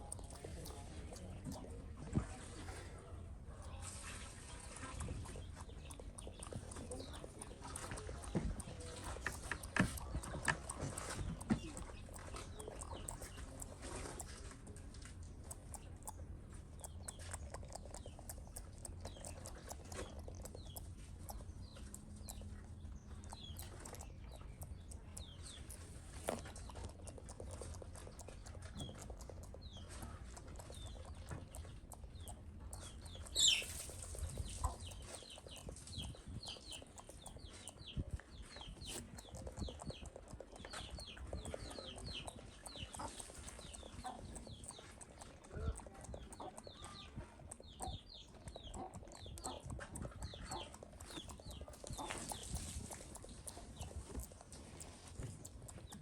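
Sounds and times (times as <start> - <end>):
monkey lip-smacking: 0.0 - 56.0
monkey chirping: 4.9 - 14.3, 15.4 - 56.0.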